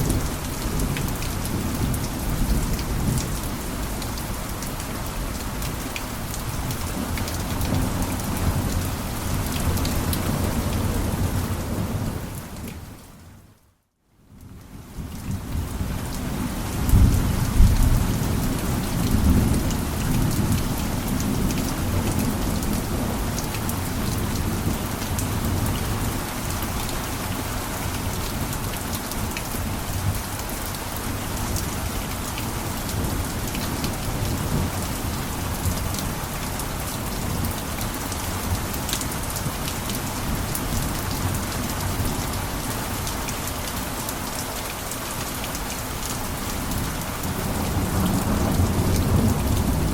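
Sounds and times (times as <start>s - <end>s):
heavy rain: 0.0s - 49.9s
low rumble of thunder: 15.1s - 26.1s, 47.2s - 49.9s.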